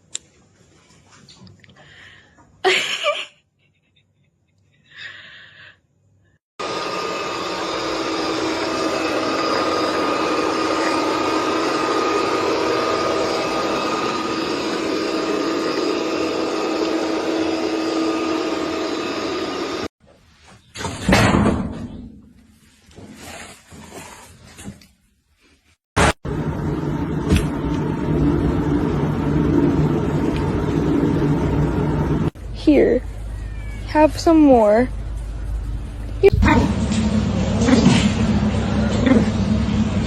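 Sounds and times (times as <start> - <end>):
machine whirring: 6.6 - 19.9.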